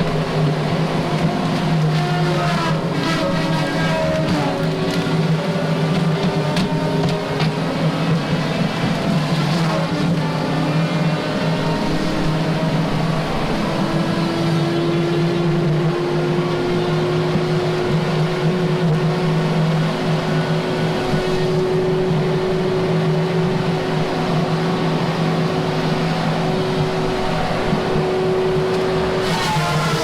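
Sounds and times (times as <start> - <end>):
heavy diesel engine with whine: 0.0 - 30.0.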